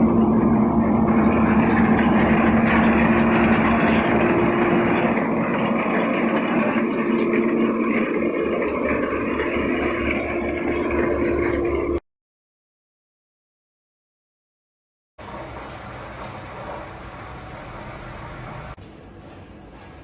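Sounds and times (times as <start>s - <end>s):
machinery humming: 15.2s - 18.8s
mechanical whirr: 15.2s - 18.8s.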